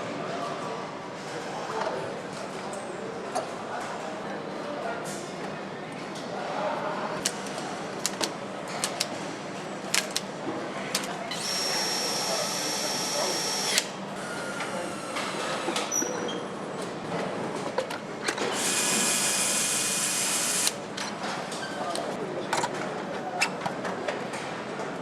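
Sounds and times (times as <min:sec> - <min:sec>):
clicks and knocks of assembly: 0:07.2 - 0:09.2, 0:09.9 - 0:10.3
power tool whining: 0:11.3 - 0:13.9.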